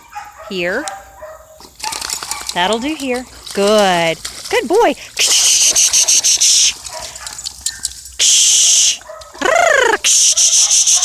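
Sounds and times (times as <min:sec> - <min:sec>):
high hissing buzz: 0:05.1 - 0:06.8, 0:08.2 - 0:09.1, 0:09.7 - 0:11.0.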